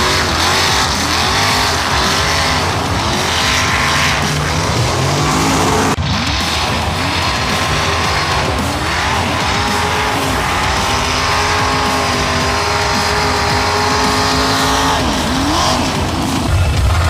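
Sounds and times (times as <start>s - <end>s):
truck engine revving high: 0.0s - 17.0s.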